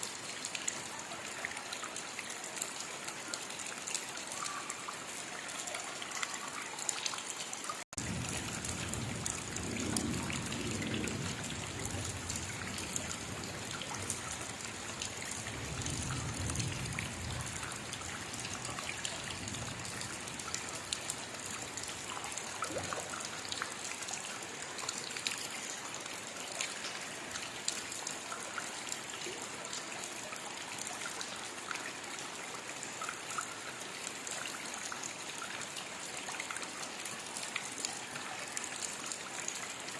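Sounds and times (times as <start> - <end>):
steady rainfall: 0.0 - 39.9
raindrops ticking: 1.6 - 32.2.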